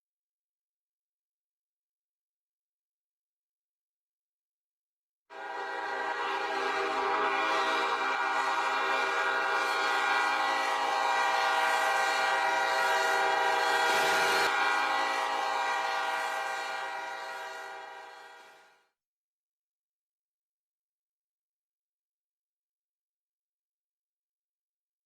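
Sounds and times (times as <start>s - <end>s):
train horn: 5.3s - 18.9s.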